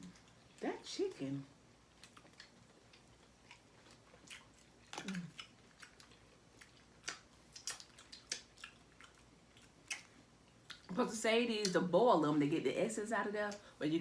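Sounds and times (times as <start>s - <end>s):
chewing and biting food: 0.0s - 0.6s, 1.8s - 11.0s
mouth clicks and smacks: 2.0s - 10.9s.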